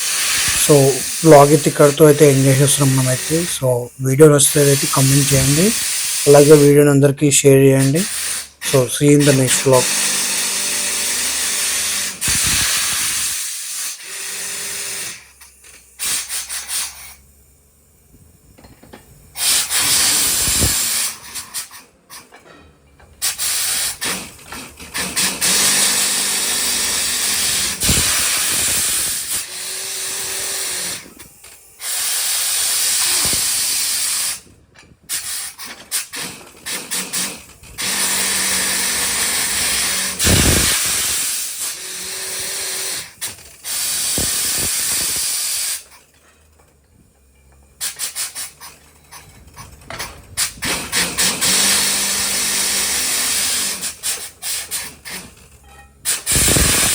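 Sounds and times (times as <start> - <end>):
compressed air hissing: 0.0 - 18.3, 19.2 - 22.3, 23.2 - 46.1, 47.8 - 48.8, 50.4 - 55.4, 56.0 - 56.9.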